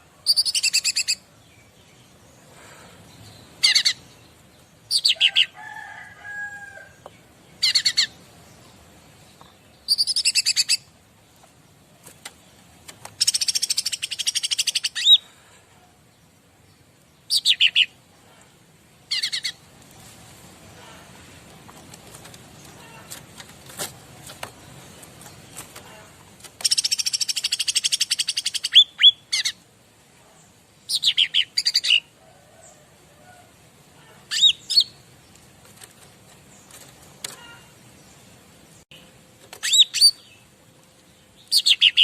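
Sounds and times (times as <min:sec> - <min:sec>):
lower steady bird call: 0:00.0 - 0:08.8, 0:09.4 - 0:11.0, 0:13.2 - 0:19.7, 0:41.1 - 0:42.0.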